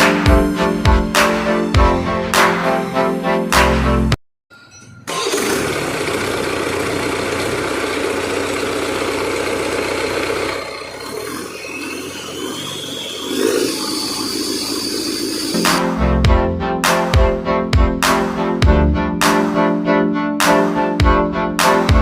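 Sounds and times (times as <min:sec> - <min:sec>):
diesel engine running: 0:05.1 - 0:12.9.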